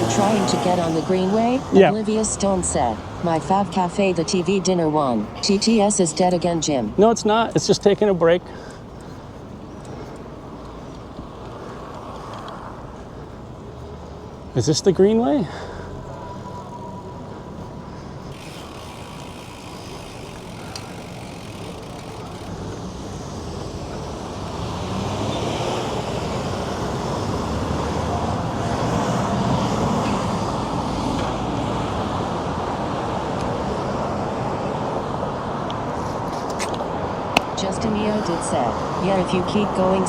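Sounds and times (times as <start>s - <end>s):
road traffic rushing: 0.0s - 40.0s.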